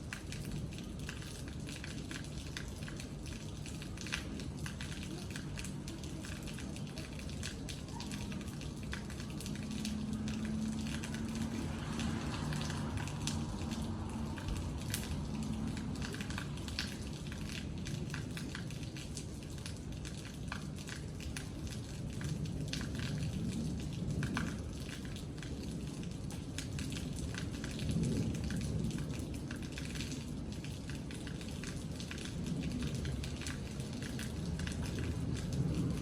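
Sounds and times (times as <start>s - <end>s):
raindrops ticking on hard surface: 0.0s - 36.0s.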